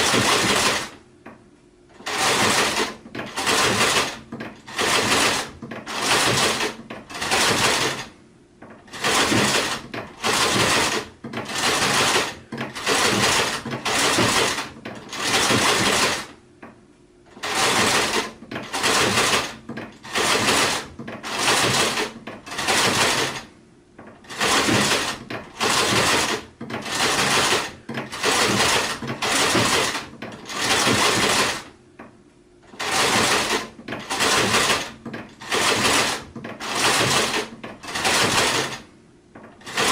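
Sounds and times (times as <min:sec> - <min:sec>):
sewing machine stitching: 0:00.0 - 0:01.0, 0:01.9 - 0:16.4, 0:17.3 - 0:31.8, 0:32.6 - 0:39.9.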